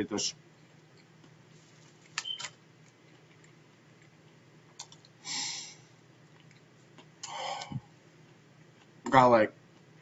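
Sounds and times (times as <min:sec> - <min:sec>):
chewing mouth clicks and smacks: 0:02.0 - 0:05.2, 0:06.1 - 0:07.4.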